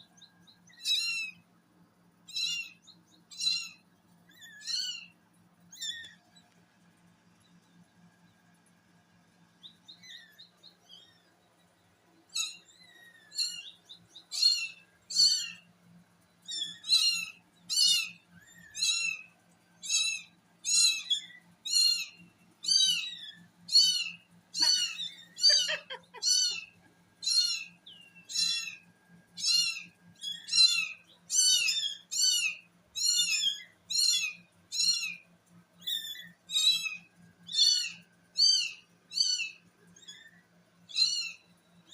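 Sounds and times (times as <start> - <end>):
kitten mewing: 24.6 - 26.6.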